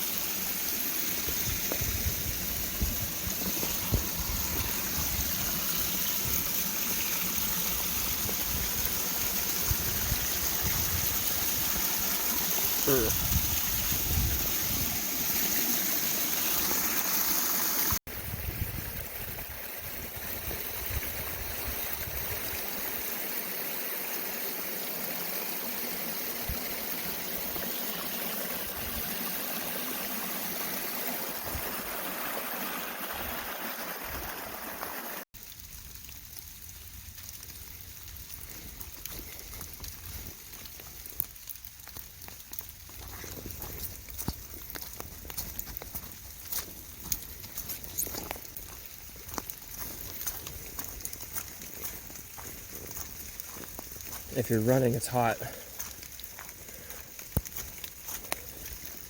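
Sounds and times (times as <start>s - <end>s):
flowing forest stream: 0.0s - 59.0s.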